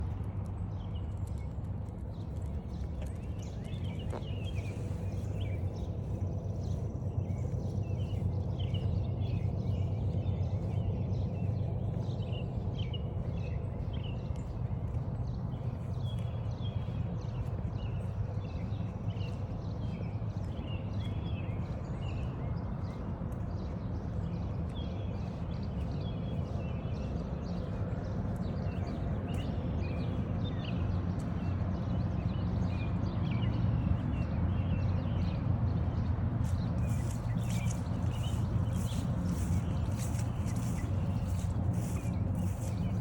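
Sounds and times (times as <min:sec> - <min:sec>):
footsteps on forest trail: 0:02.1 - 0:32.7, 0:34.2 - 0:43.0
songbirds chirping and singing: 0:02.4 - 0:43.0
low rumble: 0:33.8 - 0:43.0.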